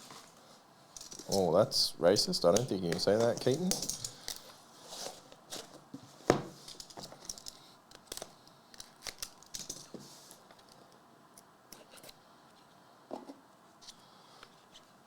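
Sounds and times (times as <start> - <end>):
plastic and paper rustling: 2.5 - 8.2.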